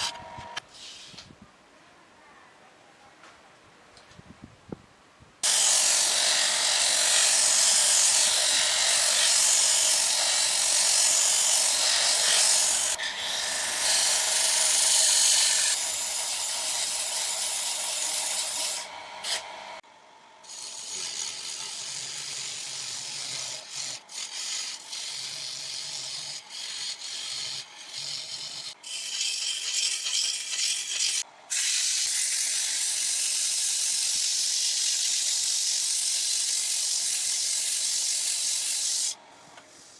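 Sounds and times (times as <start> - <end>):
wood scraping on spinning lathe: 5.4 - 19.8, 20.4 - 31.2.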